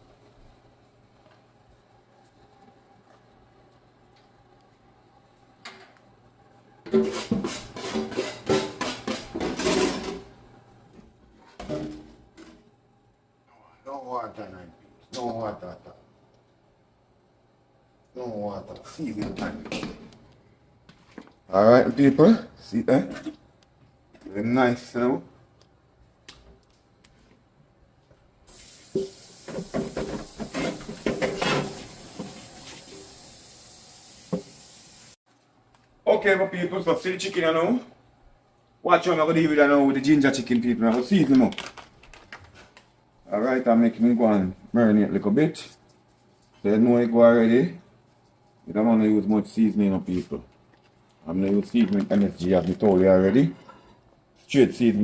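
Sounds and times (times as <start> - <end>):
cookware knocking and scraping: 6.9 - 10.3, 29.0 - 32.4
tap water running into sink: 28.5 - 35.2
splashing and clattering: 28.9 - 32.9.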